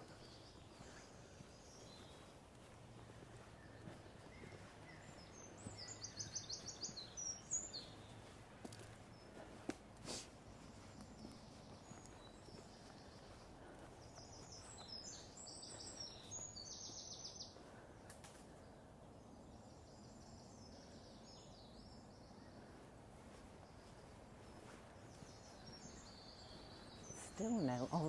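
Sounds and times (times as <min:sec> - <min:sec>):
songbirds singing: 0:00.0 - 0:28.0.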